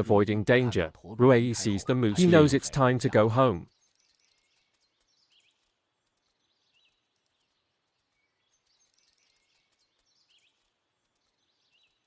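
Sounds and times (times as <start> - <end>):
low steady hiss: 0.0 - 12.0
small bird chirping: 3.7 - 12.0.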